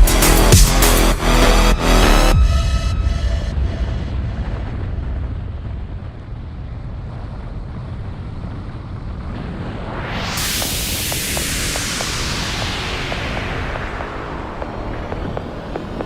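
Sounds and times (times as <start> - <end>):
wind rumbling on microphone: 2.9 - 16.0
bright hiss: 9.8 - 16.0.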